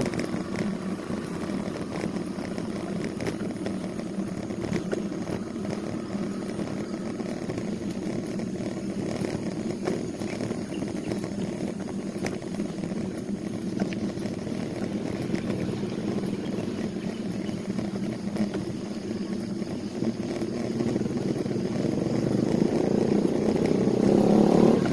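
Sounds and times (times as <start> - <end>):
vehicle engine running: 0.0 - 24.9.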